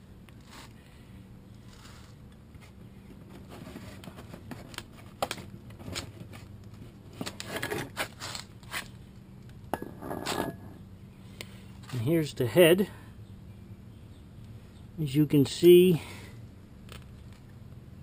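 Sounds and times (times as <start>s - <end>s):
engine parts clicking and scraping: 1.5s - 10.8s, 16.8s - 17.6s.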